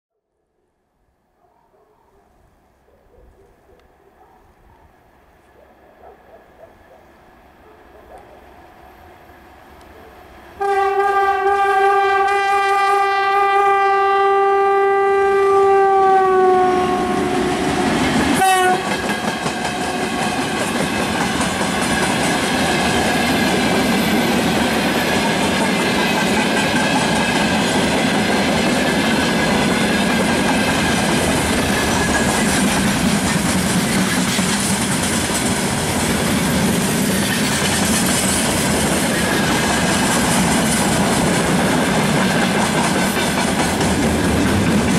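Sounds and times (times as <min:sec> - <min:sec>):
locomotive horn: 0:10.6 - 0:19.0
train wheels on rails: 0:17.0 - 0:44.9
clickety-clack over rail joints: 0:18.1 - 0:44.9.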